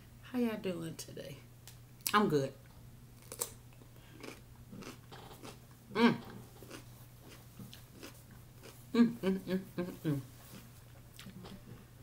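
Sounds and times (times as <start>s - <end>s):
chewing: 3.2s - 5.7s, 6.5s - 8.8s, 10.5s - 11.5s.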